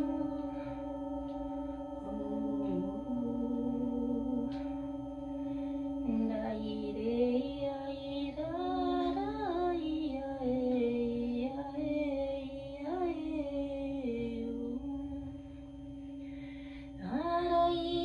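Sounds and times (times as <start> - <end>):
high voice singing: 2.0 - 5.0.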